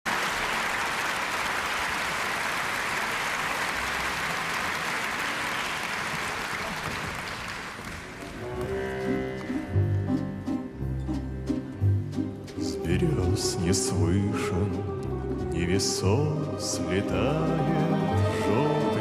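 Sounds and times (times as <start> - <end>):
audience applause: 0.0 - 9.8
instrumental song intro: 8.4 - 19.0.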